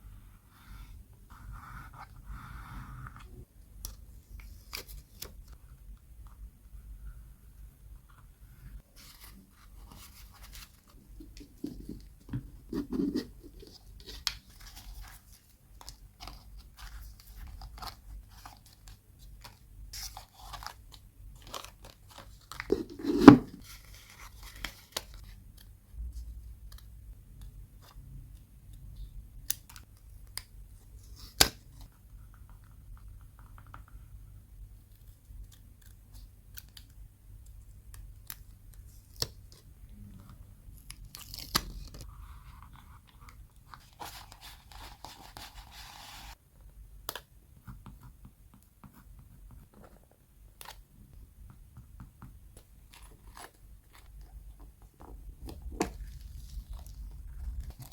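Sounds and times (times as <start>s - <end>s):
paper rustling and scraping: 21.4s - 25.3s, 43.7s - 46.4s.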